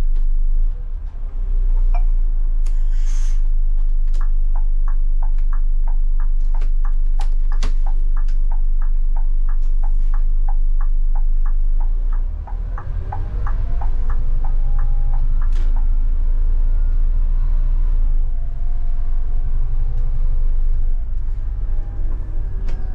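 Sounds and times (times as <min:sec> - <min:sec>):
bus diesel engine idling: 0:00.0 - 0:22.9
turn signal relay ticking: 0:03.4 - 0:17.4.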